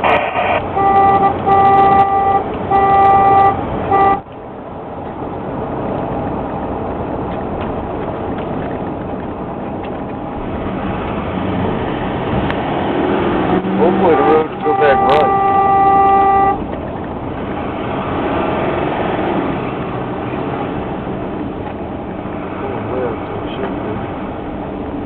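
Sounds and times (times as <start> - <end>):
vehicle horn honking: 0.0 - 4.2, 14.0 - 16.6
moving vehicle road noise: 0.0 - 25.0.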